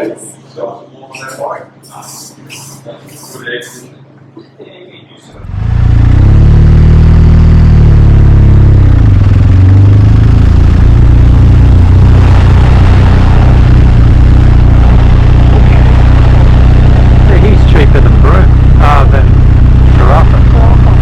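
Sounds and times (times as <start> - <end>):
motorcycle engine running: 5.4 - 21.0.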